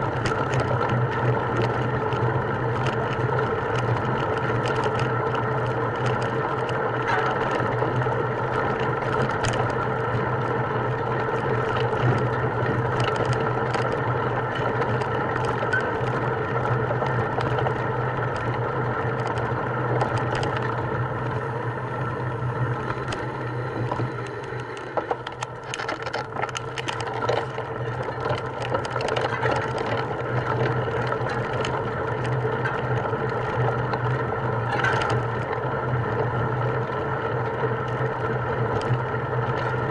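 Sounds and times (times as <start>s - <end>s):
small rattles and clicks: 0.0s - 39.9s
motor humming: 9.5s - 35.9s.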